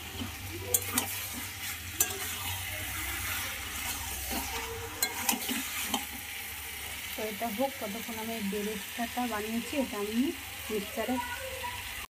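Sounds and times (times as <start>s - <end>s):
meat sizzling in a pan: 0.0s - 12.0s
metal spatula clinking on pan: 0.7s - 1.2s, 2.0s - 2.4s, 4.3s - 6.1s.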